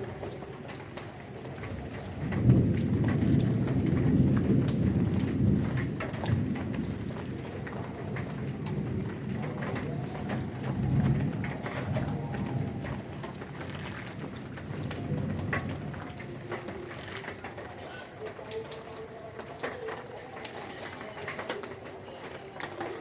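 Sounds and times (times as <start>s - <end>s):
heavy rain falling: 0.0s - 23.0s
rumble of thunder: 1.5s - 18.8s.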